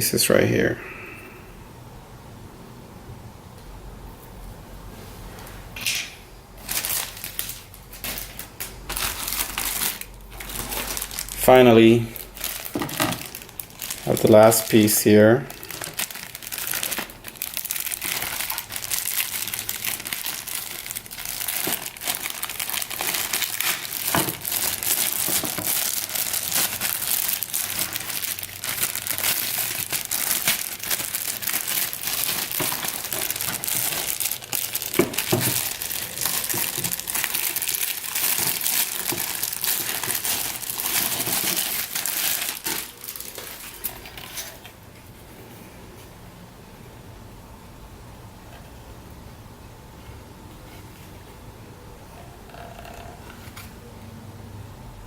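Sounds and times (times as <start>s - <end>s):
plastic packaging crinkling: 6.6s - 45.3s.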